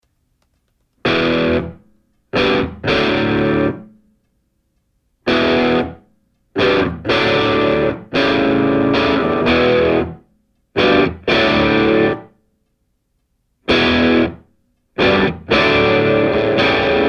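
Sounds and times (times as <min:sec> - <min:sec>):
distorted electric guitar chords: 0:01.0 - 0:01.8, 0:02.4 - 0:04.0, 0:05.3 - 0:06.0, 0:06.6 - 0:10.2, 0:10.8 - 0:12.3, 0:13.7 - 0:17.0.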